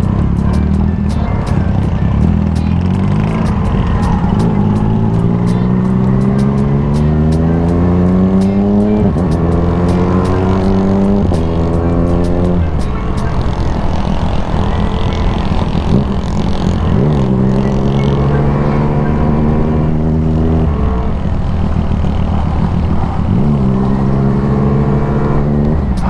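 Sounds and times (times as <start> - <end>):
vehicle engine revving: 0.0 - 26.0.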